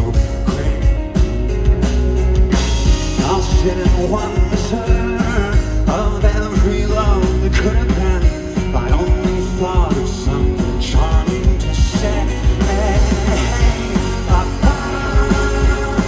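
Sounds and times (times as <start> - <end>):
sung vocals: 0.0 - 1.6, 2.8 - 16.0
drums steady beat: 0.0 - 16.0
live rock band: 0.0 - 16.0.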